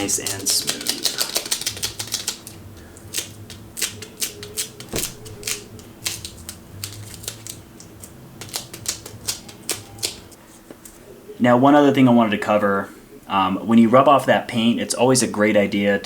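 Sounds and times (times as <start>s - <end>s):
tape sticking and pulling away: 4.9s - 7.5s.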